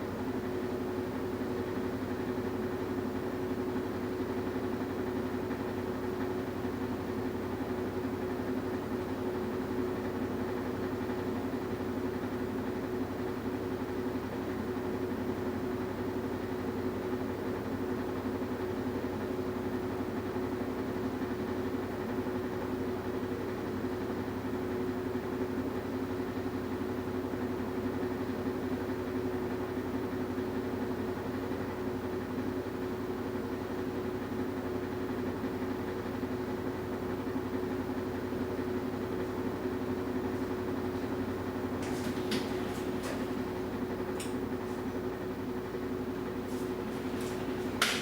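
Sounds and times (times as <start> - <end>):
washing machine motor hum: 36.8 - 48.0.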